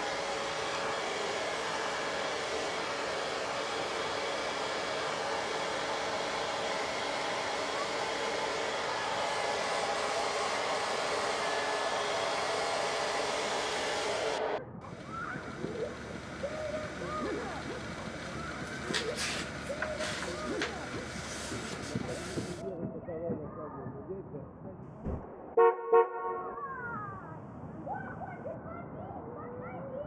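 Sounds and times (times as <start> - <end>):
hair dryer blowing: 0.0 - 22.6.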